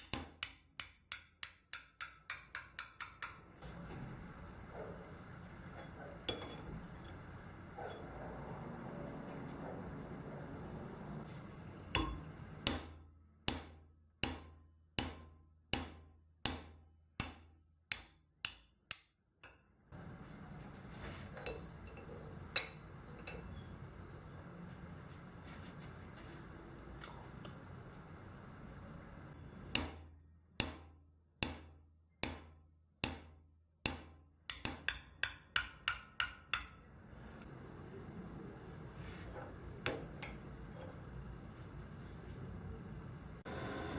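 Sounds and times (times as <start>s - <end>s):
hammer striking metal: 5.8s - 7.2s, 11.9s - 19.6s, 29.7s - 36.8s, 39.3s - 40.9s.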